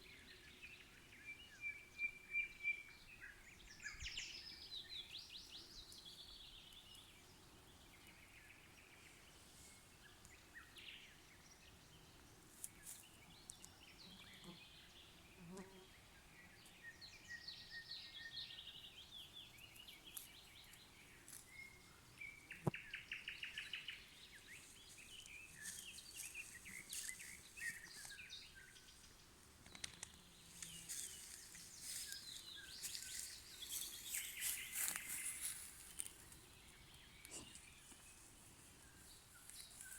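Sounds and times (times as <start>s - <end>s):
nightingale singing: 16.8s - 39.9s.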